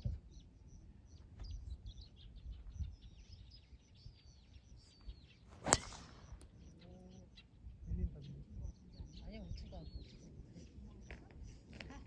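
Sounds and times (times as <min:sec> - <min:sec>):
birds chirping: 0:00.3 - 0:11.6
golf club striking ball: 0:05.6 - 0:06.5.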